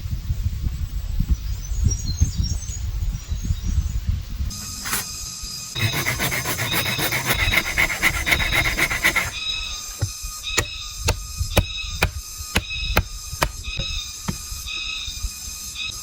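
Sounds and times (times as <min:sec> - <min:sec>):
hand tool rasping bamboo: 0:04.8 - 0:05.1, 0:05.8 - 0:14.4
sharp knocks on bamboo: 0:10.0 - 0:14.5.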